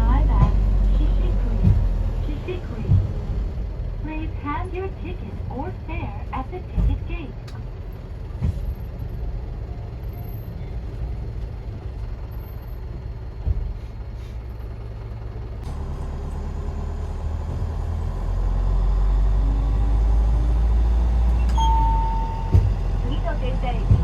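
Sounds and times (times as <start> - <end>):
minibus engine rumble: 0.0 - 24.0
short beep: 21.4 - 22.7.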